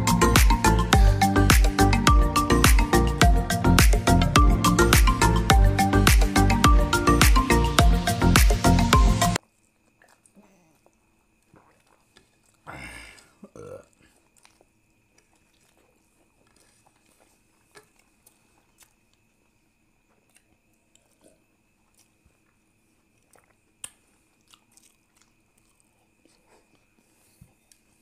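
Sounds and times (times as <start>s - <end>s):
chewing mouth clicks and smacks: 9.4s - 28.0s.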